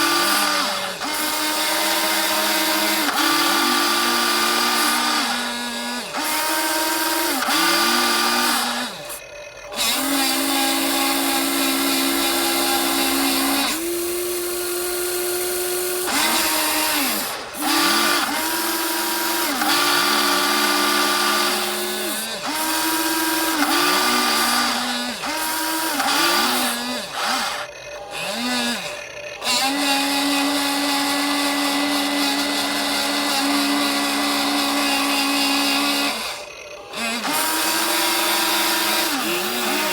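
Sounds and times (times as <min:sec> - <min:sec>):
electric motors whining: 0:00.0 - 0:39.9.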